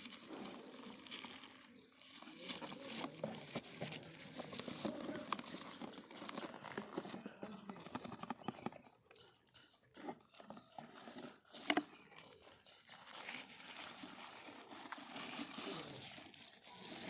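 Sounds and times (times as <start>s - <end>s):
packaging rustling: 0.0s - 8.7s, 12.7s - 17.0s
packaging clicks and knocks: 0.0s - 8.9s.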